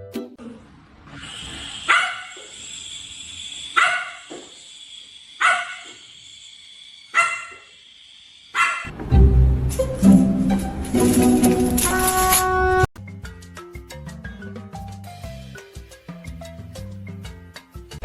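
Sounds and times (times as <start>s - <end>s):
dog barking: 1.8s - 2.5s, 3.8s - 4.3s, 5.4s - 6.0s, 7.1s - 7.7s, 8.6s - 8.9s.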